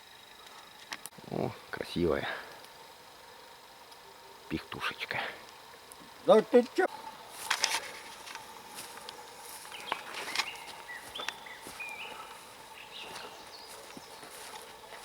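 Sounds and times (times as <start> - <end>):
campfire crackling and popping: 2.4 - 4.2, 5.2 - 12.8.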